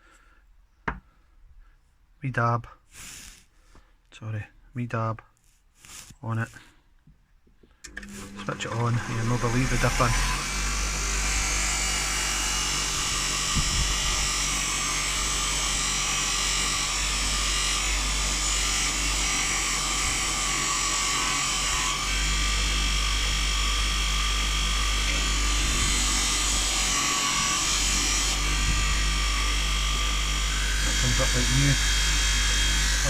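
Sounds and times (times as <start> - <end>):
electric polishing wheel running: 7.9 - 33.0.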